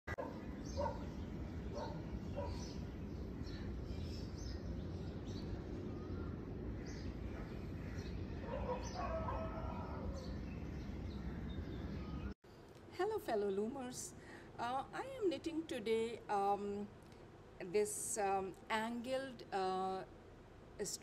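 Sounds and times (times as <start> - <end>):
birds chirping: 0.1 - 12.4.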